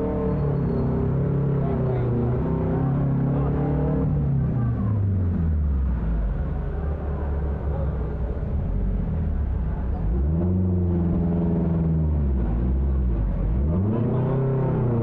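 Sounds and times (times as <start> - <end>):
vehicle engine revving: 8.4 - 15.0.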